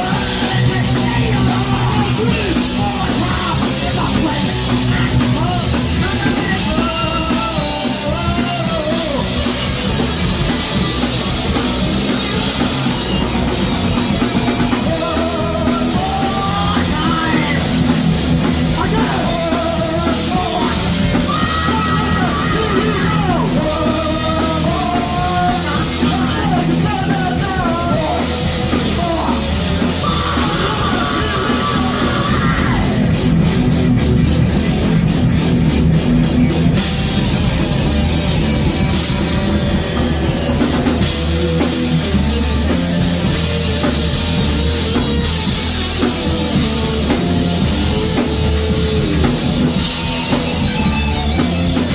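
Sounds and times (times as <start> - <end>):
person yelling lead vocal: 0.0 - 10.0, 14.0 - 33.3
thrash metal band playing live: 0.0 - 51.9.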